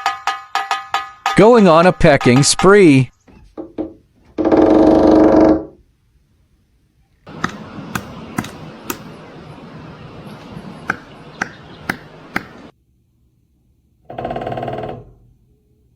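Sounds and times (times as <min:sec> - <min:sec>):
steady background hiss: 0:05.8 - 0:14.0
woodpecker tapping: 0:07.3 - 0:12.7.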